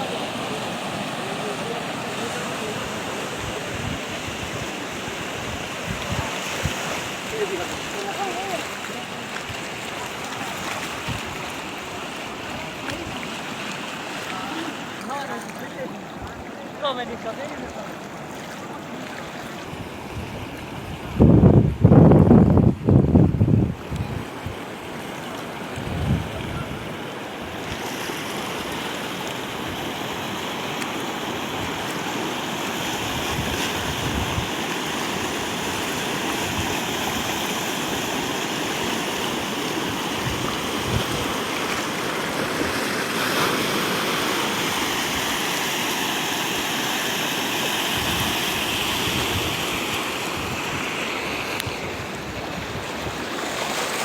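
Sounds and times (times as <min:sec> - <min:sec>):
floodwater rushing: 0:00.0 - 0:54.0
wind buffeting microphone: 0:02.9 - 0:08.6, 0:10.8 - 0:11.6, 0:19.6 - 0:24.6, 0:25.7 - 0:27.6, 0:33.0 - 0:38.0, 0:39.8 - 0:42.9, 0:47.9 - 0:53.5.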